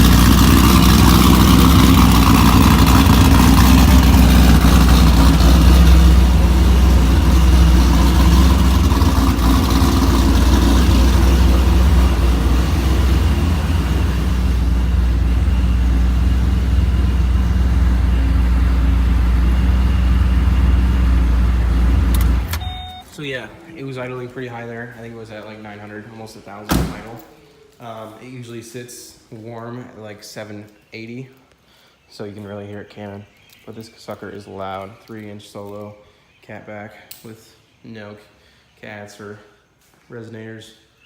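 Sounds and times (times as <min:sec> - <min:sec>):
car engine idling loud: 0:00.0 - 0:23.0.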